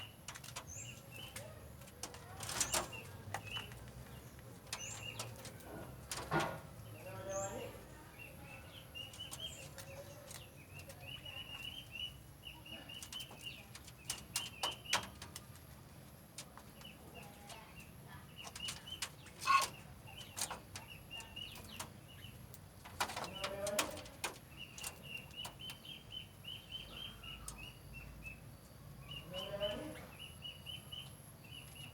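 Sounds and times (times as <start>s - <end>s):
harsh bird calls: 18.3s - 22.4s.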